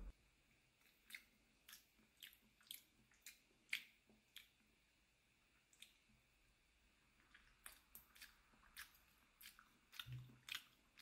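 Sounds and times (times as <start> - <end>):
wet mouth chewing clicks: 0.8 - 4.6, 7.2 - 11.0.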